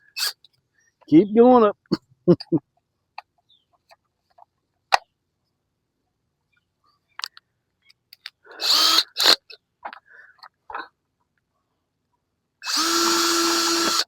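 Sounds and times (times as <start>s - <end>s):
power drill boring into plastic: 0.2s - 0.4s, 8.6s - 9.4s, 12.6s - 14.0s.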